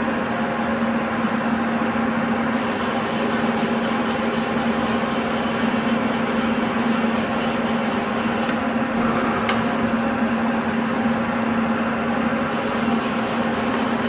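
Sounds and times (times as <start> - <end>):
lathe running: 3.0 - 14.0.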